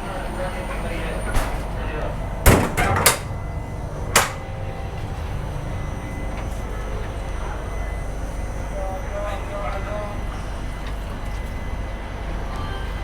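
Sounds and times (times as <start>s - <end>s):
train coach low hum: 0.0s - 13.0s
door knocks: 2.4s - 3.4s
door latch clacking: 2.5s - 3.4s, 4.1s - 4.5s.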